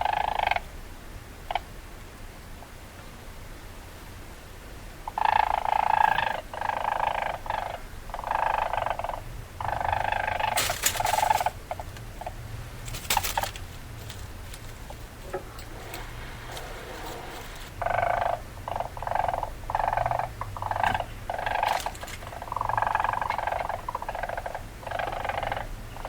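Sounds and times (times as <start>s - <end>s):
weasel calls: 5.1s - 13.7s, 14.3s - 26.0s
sharp clicks and scrapes: 12.8s - 17.8s.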